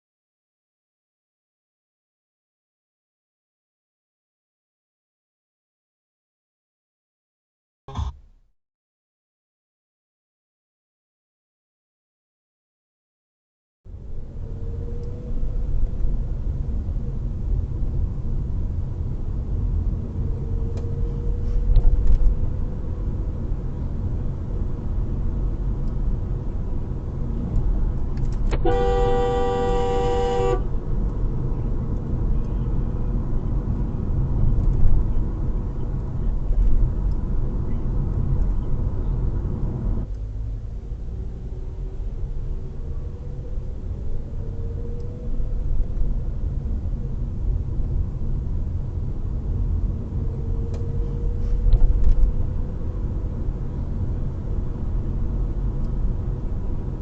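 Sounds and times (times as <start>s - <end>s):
road and engine noise: 13.9s - 57.0s
car horn: 28.5s - 30.8s.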